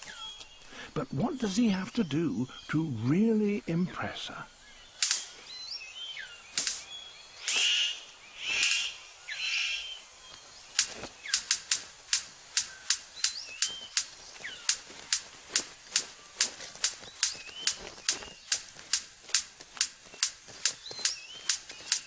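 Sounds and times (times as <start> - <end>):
bird chirps: 0.0 - 22.0
bird rasping calls: 4.5 - 22.0
bird sharp clicks: 4.9 - 22.0.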